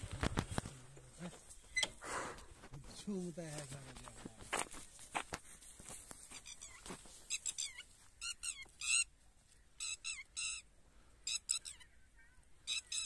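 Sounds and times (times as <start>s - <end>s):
bird calling high chirps: 6.4s - 9.1s, 9.7s - 13.0s.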